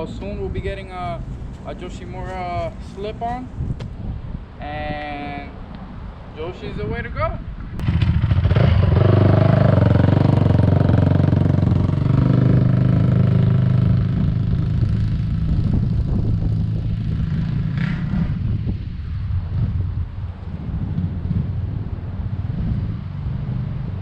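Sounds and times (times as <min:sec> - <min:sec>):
motorcycle engine running loudly: 0:07.8 - 0:18.6.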